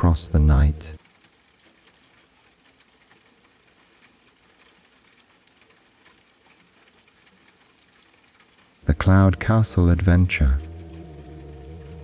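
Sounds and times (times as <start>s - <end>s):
faint steady rain: 0.0s - 12.0s.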